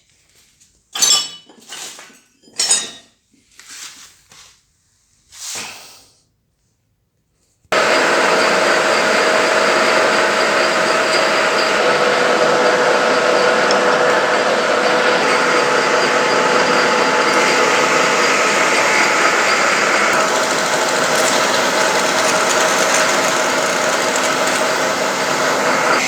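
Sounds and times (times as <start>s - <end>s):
metal lathe humming and whining: 7.8s - 26.0s.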